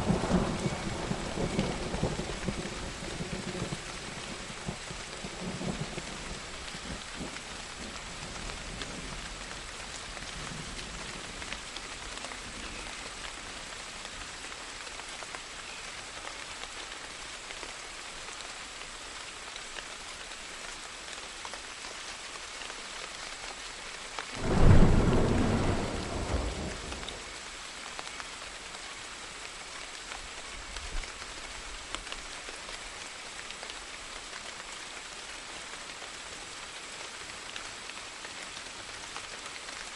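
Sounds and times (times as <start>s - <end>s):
steady rain: 0.0s - 39.9s
loud thunderclap: 24.4s - 27.2s.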